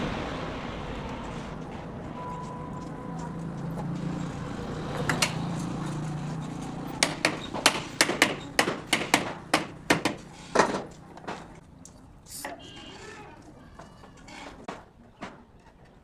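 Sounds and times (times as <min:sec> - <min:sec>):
rapid sharp knocks: 0:06.9 - 0:10.9.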